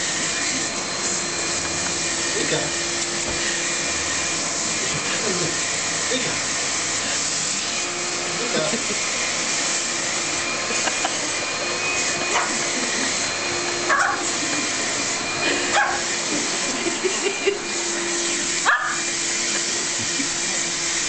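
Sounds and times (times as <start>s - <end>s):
vacuum cleaner running: 0.0s - 21.0s
dog barking and yipping: 12.2s - 12.6s, 13.8s - 14.3s, 15.7s - 16.1s, 18.6s - 19.1s.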